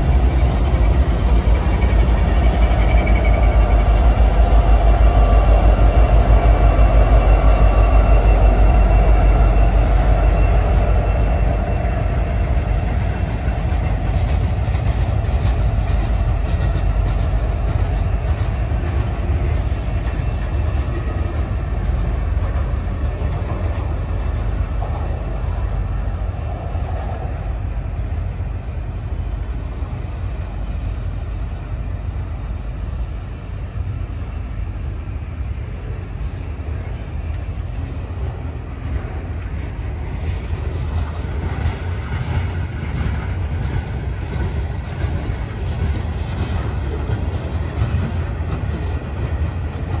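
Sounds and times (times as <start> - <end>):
train wheels rumbling on rail: 0.0 - 50.0.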